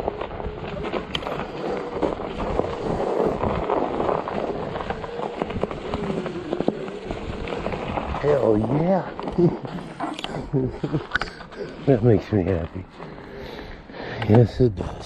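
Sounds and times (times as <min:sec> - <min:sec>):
wind on microphone: 0:00.0 - 0:08.8
tires crunching on snow and ice: 0:00.0 - 0:15.0.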